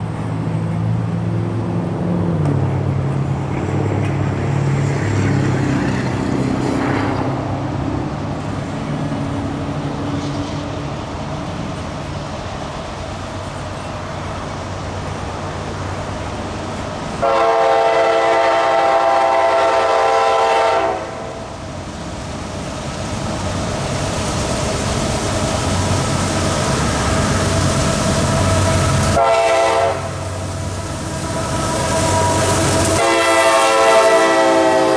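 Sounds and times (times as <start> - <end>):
diesel locomotives running: 0.0 - 34.9
train air horn blast: 17.2 - 21.4, 28.4 - 34.9.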